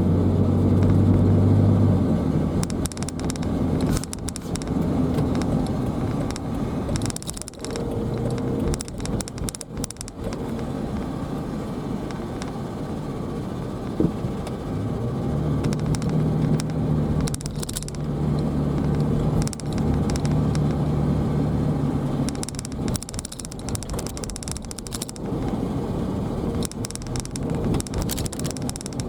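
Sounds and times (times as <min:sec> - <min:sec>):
car road and engine rumble: 0:00.0 - 0:29.0
crackling rattle: 0:02.4 - 0:12.6, 0:15.6 - 0:25.7, 0:26.4 - 0:29.0.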